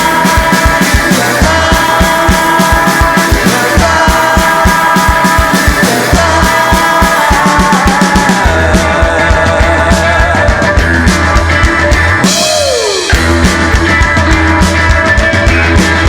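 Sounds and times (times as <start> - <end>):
drums fast steady beat: 0.0 - 16.0
rock band playing: 0.0 - 16.0.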